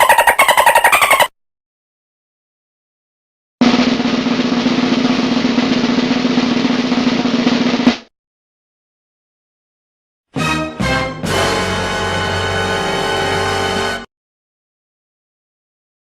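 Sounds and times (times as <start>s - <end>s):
drum roll: 3.6s - 8.1s
sharp drum hit: 3.6s - 8.1s.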